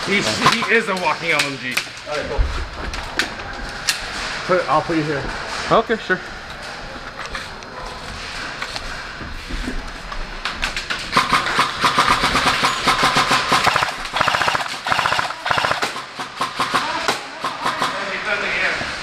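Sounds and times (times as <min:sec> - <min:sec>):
airsoft machine gun firing bursts: 0:11.1 - 0:18.1.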